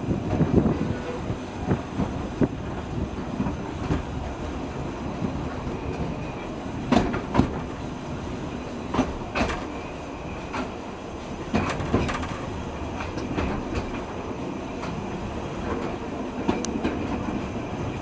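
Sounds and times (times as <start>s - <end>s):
train rumble: 0.0s - 18.0s
wheels clicking over rail joints: 5.2s - 7.8s, 8.9s - 9.8s, 11.4s - 14.2s.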